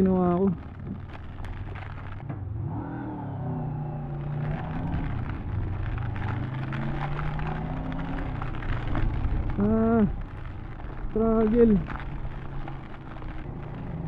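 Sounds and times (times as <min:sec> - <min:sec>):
wind and rain noise: 0:00.0 - 0:02.8, 0:03.8 - 0:14.0
motorcycle engine running: 0:03.3 - 0:14.0.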